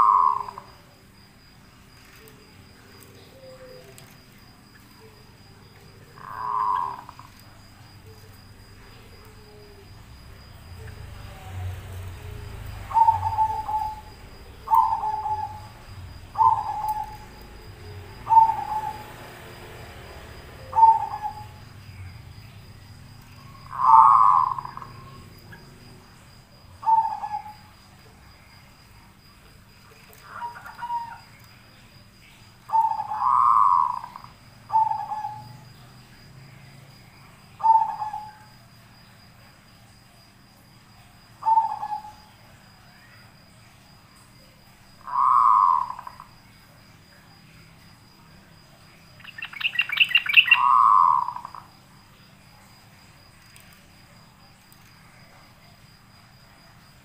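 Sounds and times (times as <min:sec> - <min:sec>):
bird giving short low calls: 0:00.0 - 0:00.7, 0:06.2 - 0:07.3, 0:23.6 - 0:25.1.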